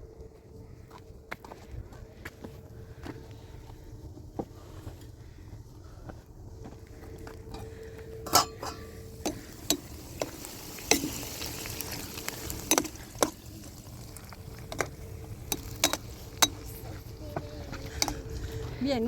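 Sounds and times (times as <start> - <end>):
spoon clinking against pot: 8.2 - 9.9.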